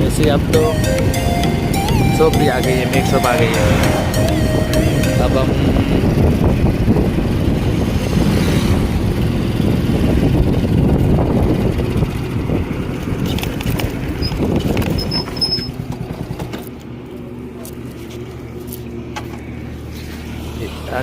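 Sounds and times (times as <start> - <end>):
wind buffeting microphone: 0.0 - 15.3
motorcycle engine running: 0.0 - 19.7
short high beeps: 0.7 - 6.1.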